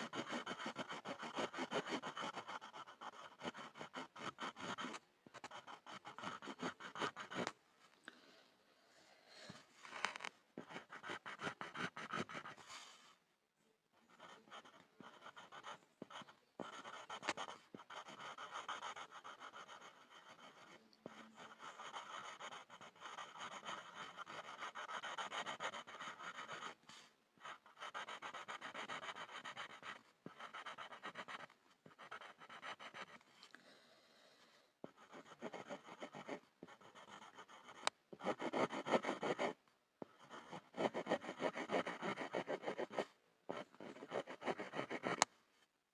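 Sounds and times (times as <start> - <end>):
pencil scribbling on a board: 0.0 - 7.5, 10.6 - 12.6, 14.0 - 26.8, 27.4 - 33.2, 34.8 - 45.2.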